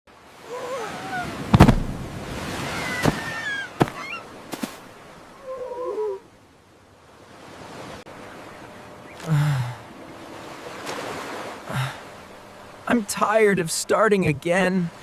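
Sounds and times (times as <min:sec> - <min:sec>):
sharp knocks: 0:01.5 - 0:01.9
bird-like calls: 0:02.6 - 0:04.4, 0:05.4 - 0:06.3, 0:08.2 - 0:10.3.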